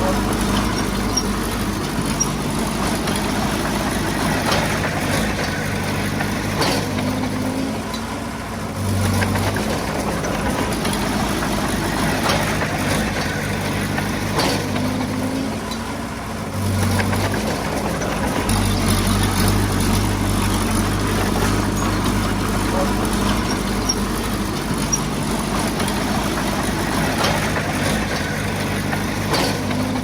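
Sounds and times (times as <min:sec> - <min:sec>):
heavy diesel engine running: 0:00.0 - 0:30.0
sharp metal clanks: 0:17.2 - 0:30.0.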